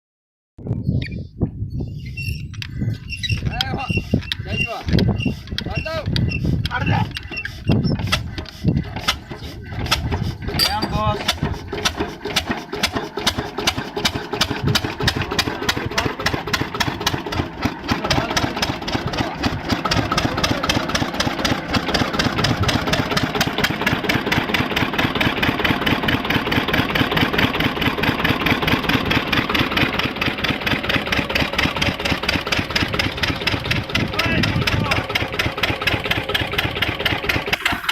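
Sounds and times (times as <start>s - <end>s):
machine engine running: 8.9s - 37.9s.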